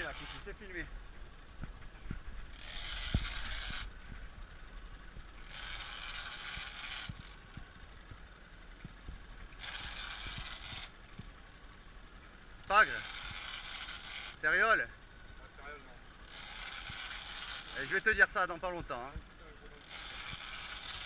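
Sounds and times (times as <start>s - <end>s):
fishing reel whirring: 0.0s - 1.5s, 2.5s - 4.2s, 5.2s - 7.6s, 9.6s - 11.8s, 12.5s - 14.8s, 16.2s - 18.5s, 19.7s - 21.0s.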